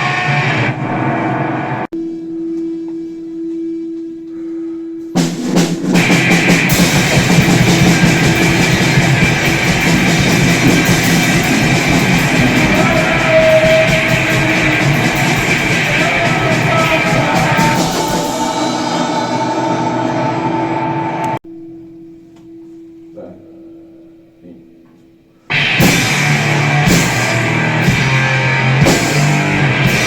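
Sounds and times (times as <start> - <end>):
distorted guitar: 0.0 - 1.9, 5.2 - 21.4, 25.5 - 30.0
drum kit: 5.1 - 20.5, 25.5 - 30.0.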